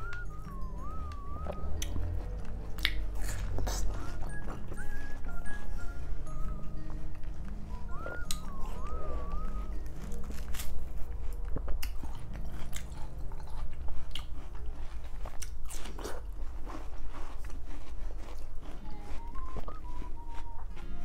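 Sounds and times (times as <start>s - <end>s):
chewing watermelon: 0.0s - 21.0s
crisp crunches: 7.9s - 21.0s.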